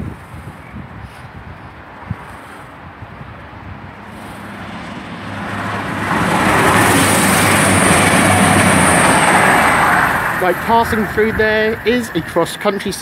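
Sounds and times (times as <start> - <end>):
low engine hum: 2.6 - 13.0
diesel train rumble: 3.6 - 13.0
high-pitched whine: 6.6 - 13.0.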